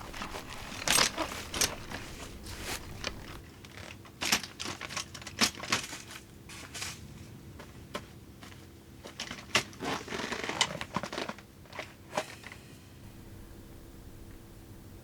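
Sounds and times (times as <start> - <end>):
scratchy rustling: 0.0 - 4.0.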